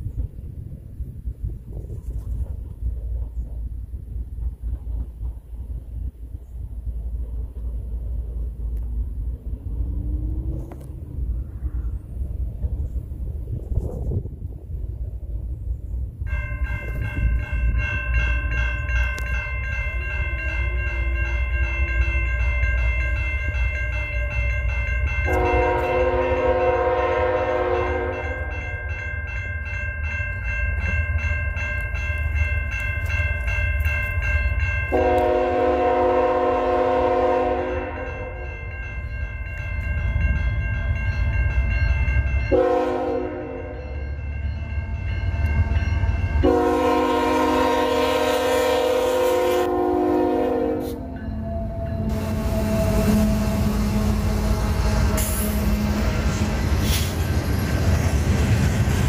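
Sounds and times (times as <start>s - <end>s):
low rumble of train: 0.0s - 59.0s
crossing bell ringing rapidly: 16.2s - 36.5s, 37.1s - 47.9s
locomotive horn blasts: 25.2s - 28.6s, 34.9s - 38.6s, 42.5s - 44.0s, 46.4s - 56.2s.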